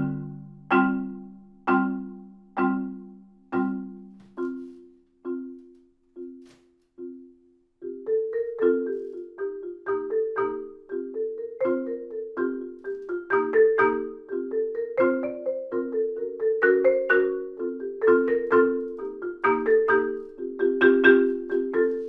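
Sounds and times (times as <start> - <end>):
marimba chords: 0.0 - 22.0
marimba melody line: 0.0 - 22.0.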